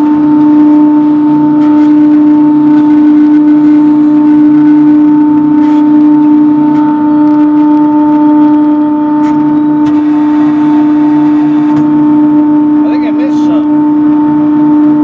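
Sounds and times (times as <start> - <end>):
sawmill machine humming: 8.9 - 15.0.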